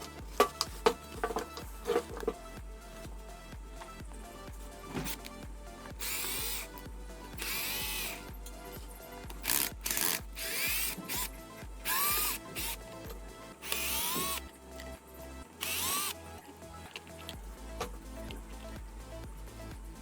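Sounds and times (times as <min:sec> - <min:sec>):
background music with beat: 0:00.0 - 0:20.0
power tool motor whirring: 0:05.0 - 0:05.3, 0:06.0 - 0:06.8, 0:07.4 - 0:08.2, 0:09.4 - 0:13.0, 0:13.6 - 0:14.5, 0:15.6 - 0:16.2.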